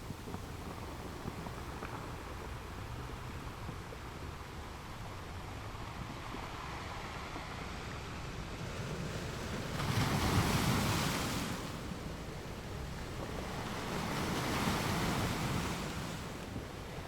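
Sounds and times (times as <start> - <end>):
ocean waves washing in: 6.3 - 17.0.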